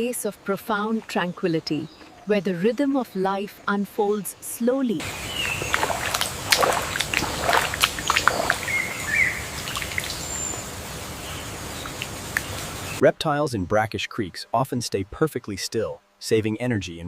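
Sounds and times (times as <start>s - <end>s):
birds chirping: 0.0s - 13.0s
steady ambient hiss: 0.0s - 17.0s
bird warbling call: 5.0s - 13.0s.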